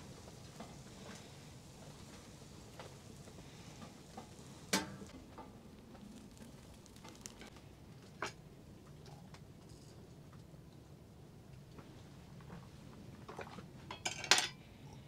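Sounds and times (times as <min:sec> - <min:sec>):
camp stove sizzling: 0:00.0 - 0:08.3.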